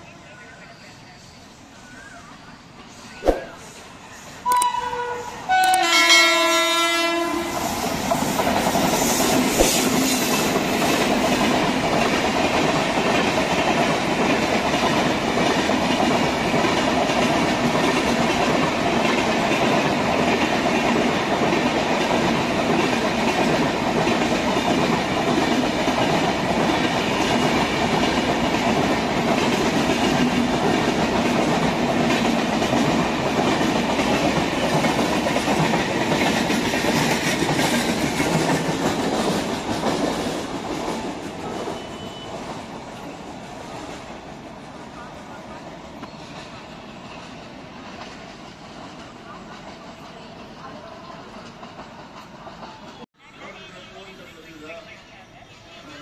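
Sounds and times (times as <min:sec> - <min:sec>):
train horn: 0:04.5 - 0:07.7
train wheels rumbling and clacking: 0:07.4 - 0:53.1.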